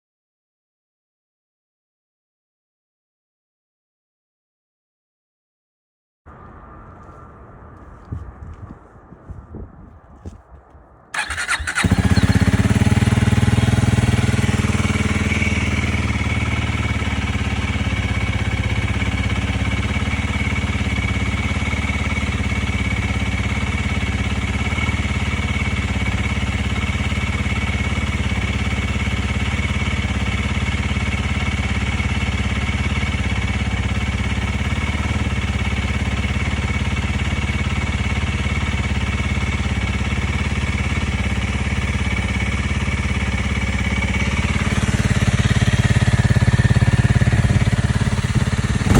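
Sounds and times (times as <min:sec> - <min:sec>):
motorcycle engine idling: 0:11.2 - 0:48.9.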